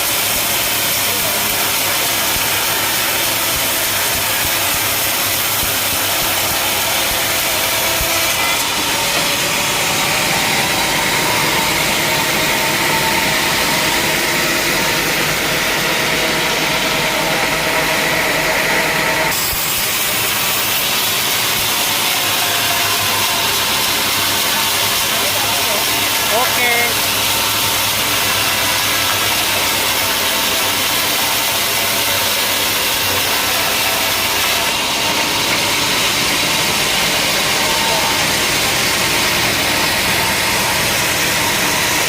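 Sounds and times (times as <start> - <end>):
saw cutting through log: 0.0 - 42.0
sawmill saw running: 0.0 - 42.0.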